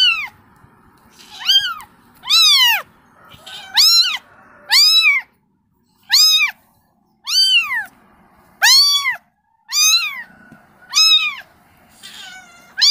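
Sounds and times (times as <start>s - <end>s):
kitten meowing: 0.0s - 0.4s, 1.1s - 5.3s, 6.0s - 6.6s, 7.2s - 7.9s, 8.6s - 10.3s, 10.9s - 12.9s.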